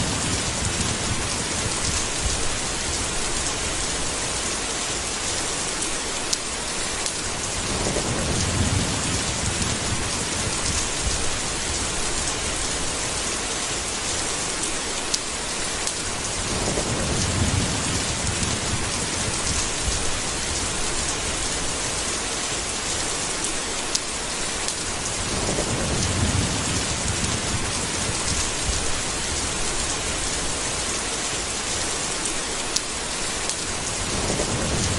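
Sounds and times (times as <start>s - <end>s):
thunder rolling: 0.0s - 3.8s, 7.5s - 12.7s, 16.3s - 21.6s, 25.0s - 30.5s, 33.8s - 34.9s
heavy rain: 0.0s - 34.9s.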